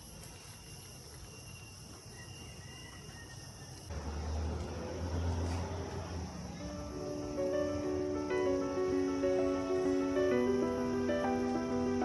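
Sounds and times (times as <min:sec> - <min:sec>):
high-pitched insect drone: 0:06.6 - 0:12.0.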